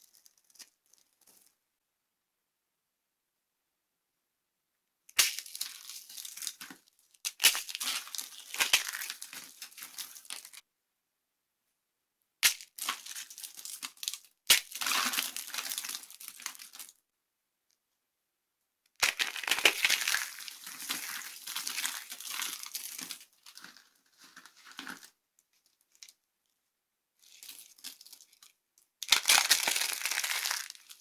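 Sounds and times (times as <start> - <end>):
dry soap crunching: 5.2 - 10.6, 12.4 - 16.9, 19.0 - 26.1, 27.2 - 31.0.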